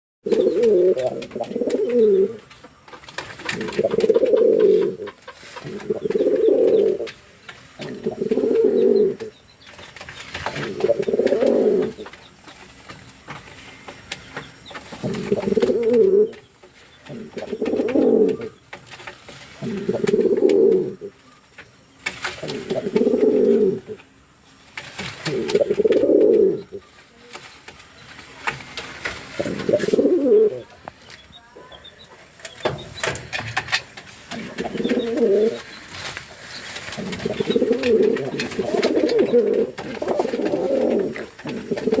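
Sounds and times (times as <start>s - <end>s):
pigeon cooing: 0.2s - 2.5s, 3.4s - 7.1s, 7.8s - 9.3s, 10.5s - 12.1s, 15.0s - 16.4s, 17.1s - 18.6s, 19.6s - 21.2s, 22.4s - 24.0s, 25.2s - 26.8s, 29.4s - 30.8s, 34.3s - 35.8s, 36.6s - 42.0s.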